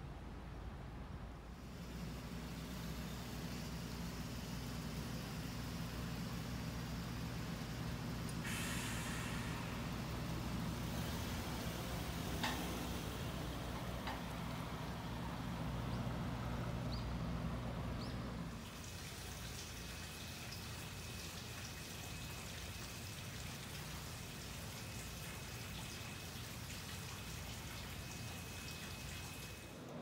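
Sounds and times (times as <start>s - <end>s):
bus engine idling: 0.0s - 18.6s.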